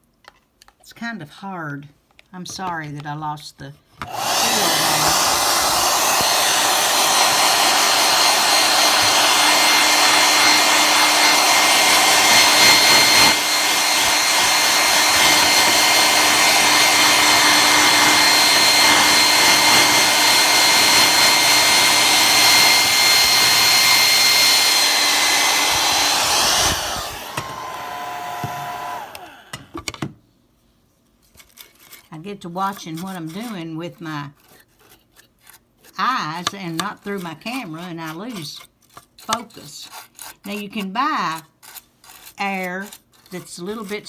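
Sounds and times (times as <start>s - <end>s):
hair dryer blowing: 4.0s - 29.9s.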